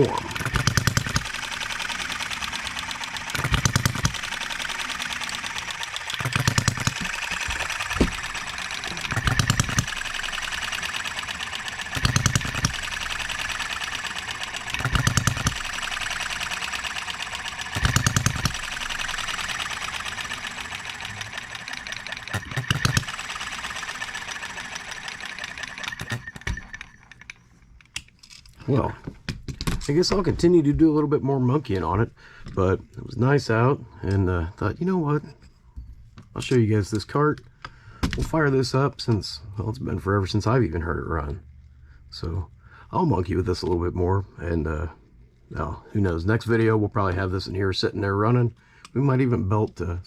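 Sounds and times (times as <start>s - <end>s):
model engine firing strokes: 0.0s - 27.4s
fast mechanical clatter: 0.0s - 27.6s.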